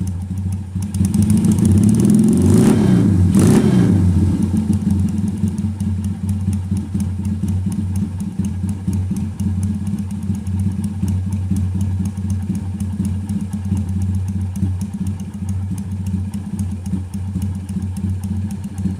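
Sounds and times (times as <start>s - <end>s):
motorcycle engine idling: 0.0s - 18.9s
fast even ticking: 4.2s - 18.9s.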